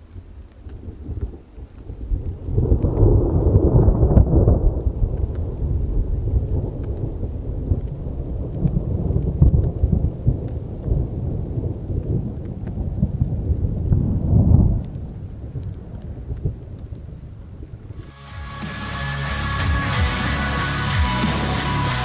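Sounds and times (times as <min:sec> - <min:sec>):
rain falling: 0:00.0 - 0:22.0
thunder rumbling: 0:00.1 - 0:16.7.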